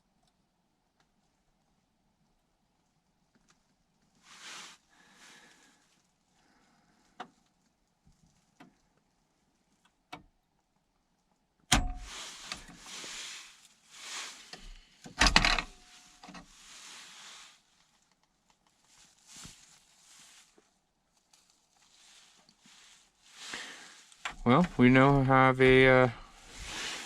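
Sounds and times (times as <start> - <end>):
rustling handling noise: 12.0 - 27.0.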